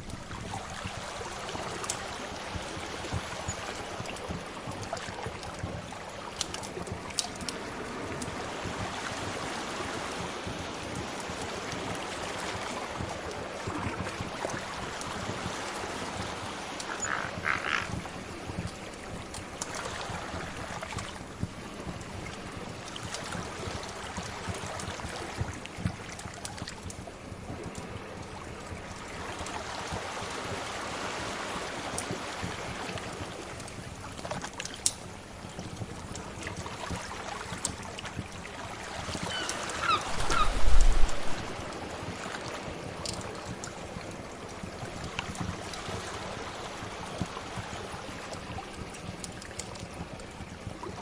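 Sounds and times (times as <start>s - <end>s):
sea waves washing: 0.0s - 51.0s
wood fire crackling: 33.6s - 35.1s.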